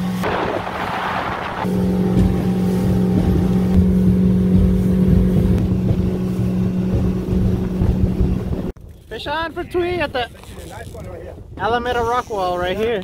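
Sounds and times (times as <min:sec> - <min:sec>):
boat motor humming: 0:00.0 - 0:09.0.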